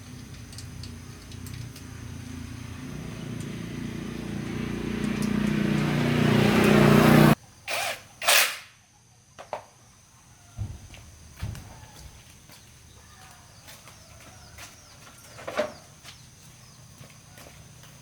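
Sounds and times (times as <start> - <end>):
motor humming: 2.2 - 7.4.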